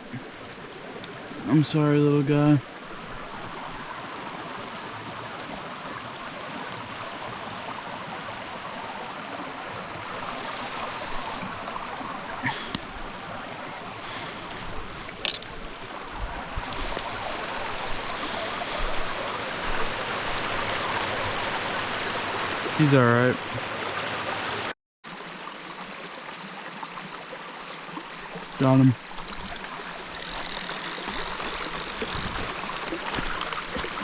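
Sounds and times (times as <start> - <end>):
stream running over rocks: 0.0 - 34.0
sharp clicks: 29.2 - 34.0.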